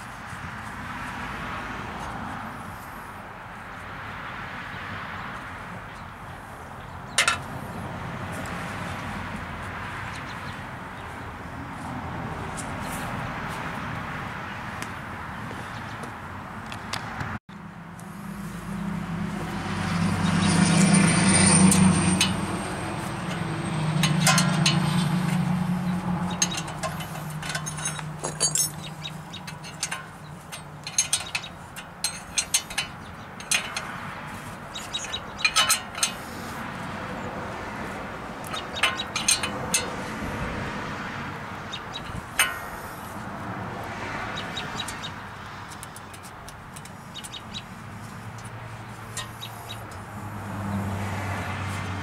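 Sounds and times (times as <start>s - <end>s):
metal tools clinking: 7.2s - 7.5s, 21.0s - 36.5s, 38.4s - 40.2s, 42.0s - 43.1s, 48.4s - 49.7s.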